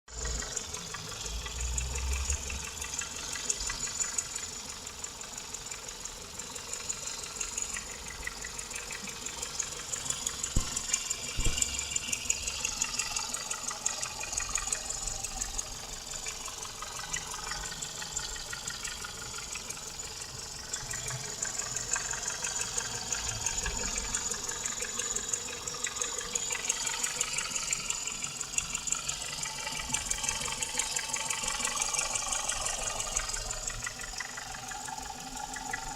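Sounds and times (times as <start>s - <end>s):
car engine knocking: 0.2s - 19.8s.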